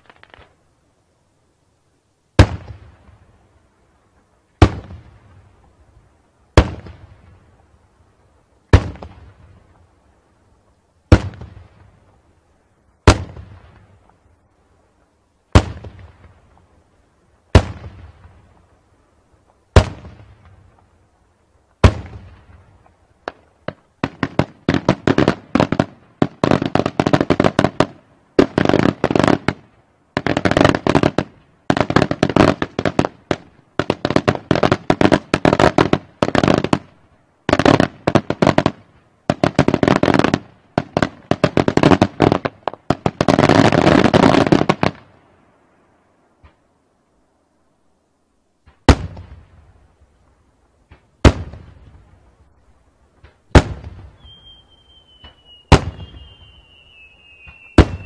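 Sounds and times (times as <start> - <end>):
loud firework shell bursts: 53.5 - 58.0.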